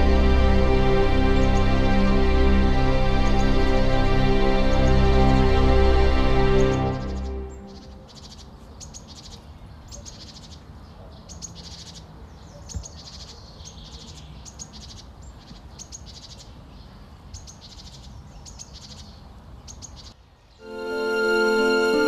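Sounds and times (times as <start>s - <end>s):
small bird trilling song: 7.0s - 20.6s.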